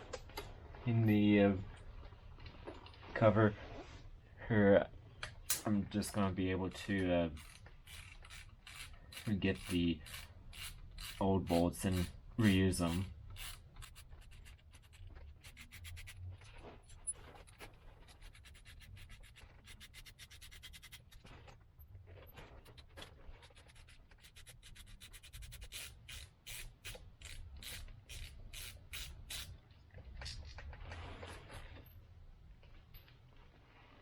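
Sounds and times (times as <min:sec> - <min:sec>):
faint handling of parts: 0:05.1 - 0:34.0
ratchet wrench clicking: 0:07.4 - 0:11.2, 0:11.8 - 0:16.2, 0:23.5 - 0:29.5.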